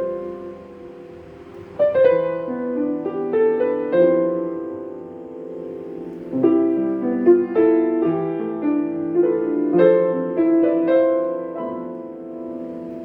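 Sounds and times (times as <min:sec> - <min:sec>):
solo piano: 0:00.0 - 0:13.0.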